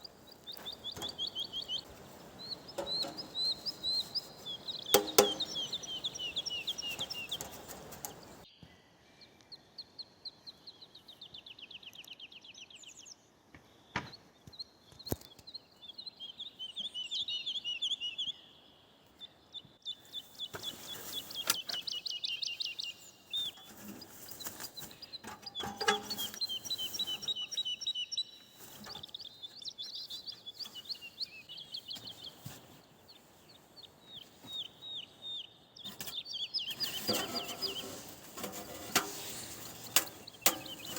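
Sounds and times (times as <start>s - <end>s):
songbirds trilling: 0.0s - 8.6s, 13.9s - 40.9s.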